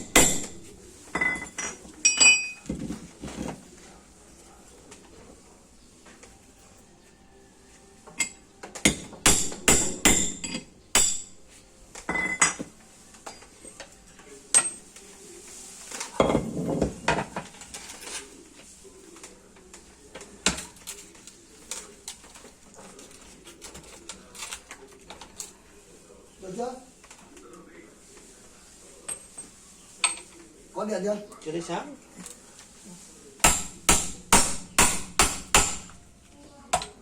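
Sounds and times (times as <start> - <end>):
metal tools clanking: 1.1 - 2.9.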